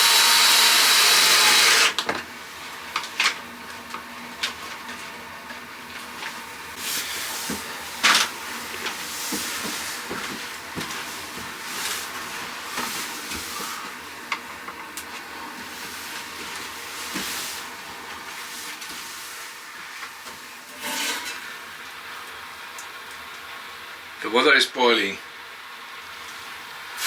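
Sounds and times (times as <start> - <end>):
steam hissing: 0.0 - 2.0
water boiling with pops: 2.0 - 23.9.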